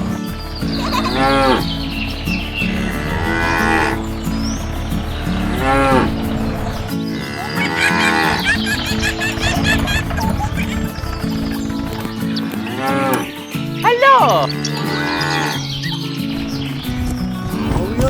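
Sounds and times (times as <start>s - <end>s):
background music: 0.0s - 18.0s
cattle mooing: 0.8s - 1.7s, 2.8s - 4.2s, 7.2s - 11.7s, 14.5s - 15.7s.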